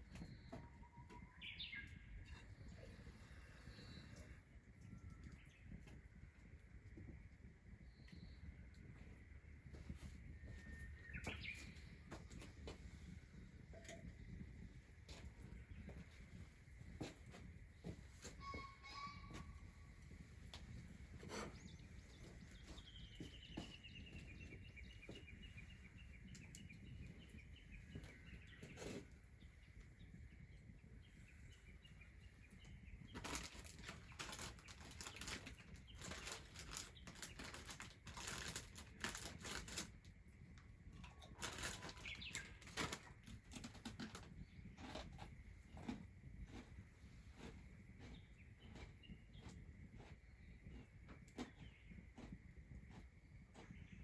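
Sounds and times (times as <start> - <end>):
bird trilling: 18.4 - 19.6.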